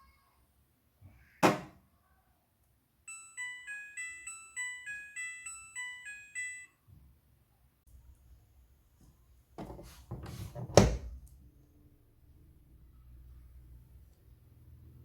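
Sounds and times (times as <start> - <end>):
sharp thump: 1.4 - 1.8
washing machine beeping tune: 3.1 - 6.8.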